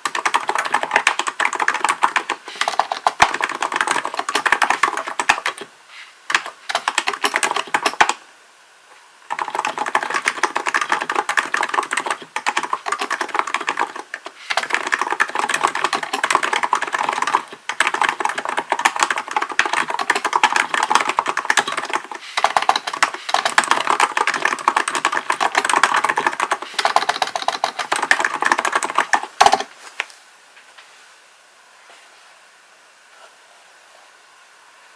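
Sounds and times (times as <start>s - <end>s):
keyboard keys clacking: 0.0s - 5.6s, 6.3s - 8.2s, 9.3s - 29.7s.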